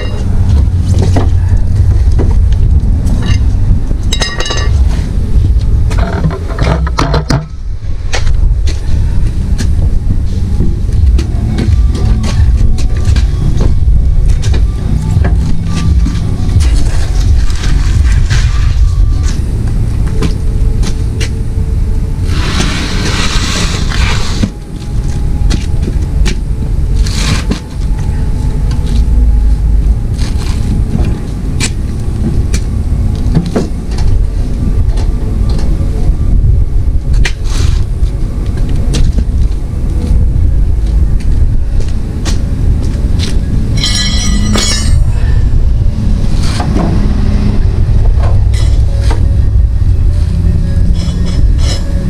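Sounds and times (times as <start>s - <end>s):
vehicle engine low rumble: 0.0s - 52.0s
metallic clanks and squeals: 43.8s - 45.1s, 50.6s - 52.0s.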